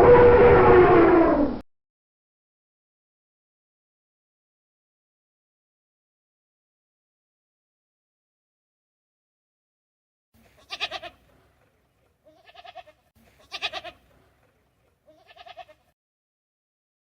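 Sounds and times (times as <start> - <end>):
goat bleating: 10.4 - 11.4, 12.2 - 14.4, 15.0 - 15.9.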